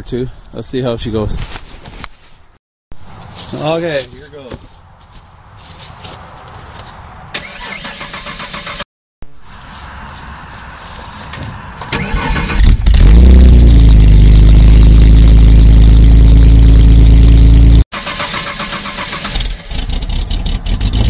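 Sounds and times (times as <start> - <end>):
starter motor cranking: 18.0 - 19.8.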